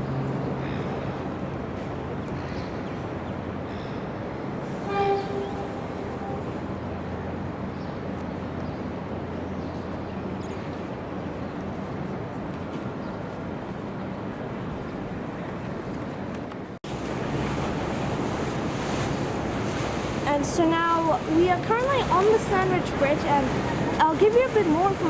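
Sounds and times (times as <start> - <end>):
train passing: 2.9 - 15.4, 16.9 - 25.0
train horn blast: 4.6 - 6.7.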